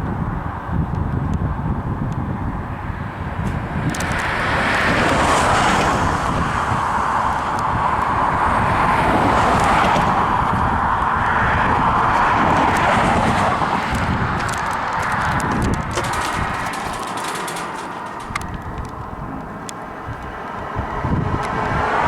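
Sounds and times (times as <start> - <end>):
passing vehicles rushing: 0.0 - 22.0.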